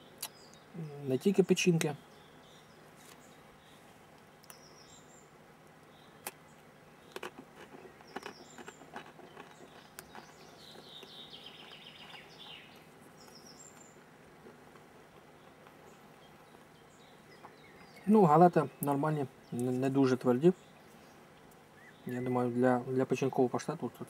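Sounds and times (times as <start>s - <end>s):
small birds chirping: 0.0s - 24.0s
crackers being chewed: 7.1s - 12.3s, 13.2s - 16.7s
bird trill: 7.9s - 14.0s, 21.8s - 22.6s.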